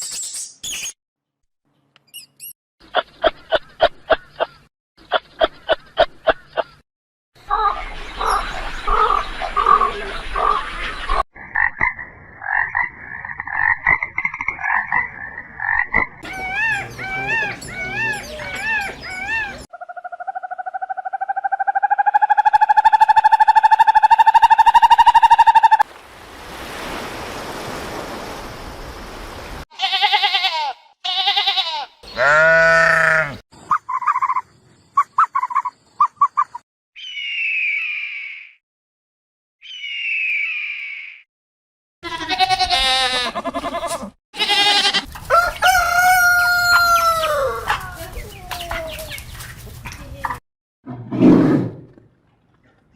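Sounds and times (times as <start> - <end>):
warbling and trilling calls: 16.2 - 25.8.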